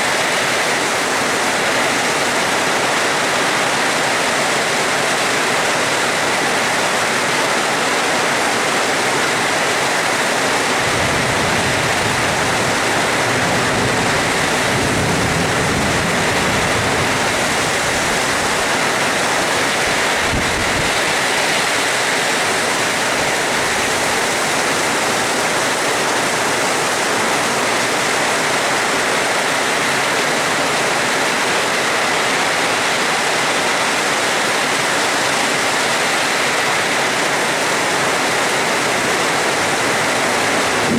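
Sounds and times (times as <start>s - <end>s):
heavy rain hiss: 0.0s - 40.9s
distant thunder rumble: 10.8s - 18.6s, 39.8s - 40.9s.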